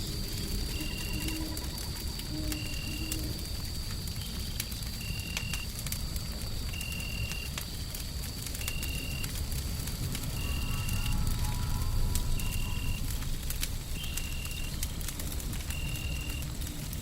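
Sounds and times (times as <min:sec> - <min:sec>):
wood fire crackling and popping: 0:00.0 - 0:17.0
faint steady high tone: 0:00.7 - 0:03.4.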